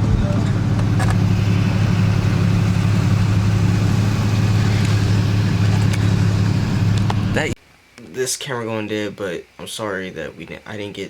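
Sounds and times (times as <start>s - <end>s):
car engine and road drone: 0.0s - 7.6s.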